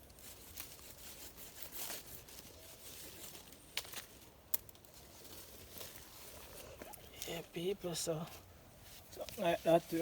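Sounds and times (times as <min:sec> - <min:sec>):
knife scraping wooden sticks: 0:00.1 - 0:04.1.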